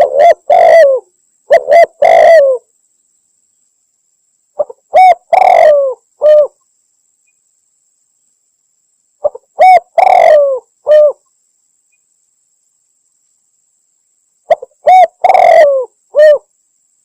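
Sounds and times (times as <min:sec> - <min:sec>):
dove cooing: 0:00.0 - 0:02.7, 0:04.6 - 0:06.6, 0:09.2 - 0:11.2, 0:14.5 - 0:16.5.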